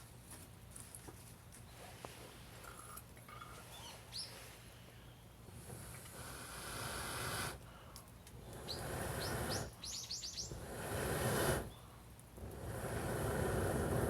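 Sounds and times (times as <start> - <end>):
small bird chirping: 3.4 - 4.4, 8.4 - 10.8.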